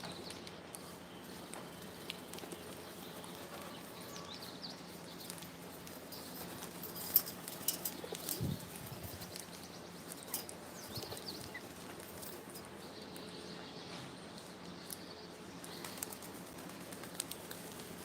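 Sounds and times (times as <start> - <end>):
birds flapping wings: 1.6 - 4.0, 5.2 - 9.5, 15.6 - 18.0.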